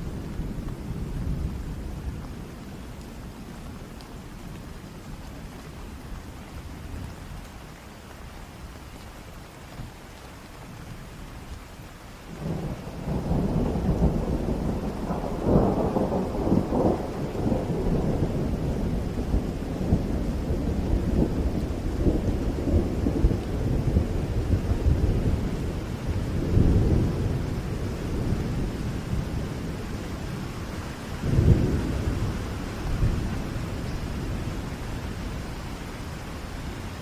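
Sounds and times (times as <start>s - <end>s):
steady rain: 0.0s - 37.0s
rolling thunder rumble: 12.3s - 37.0s
thunderclap: 12.4s - 29.4s, 31.2s - 34.4s.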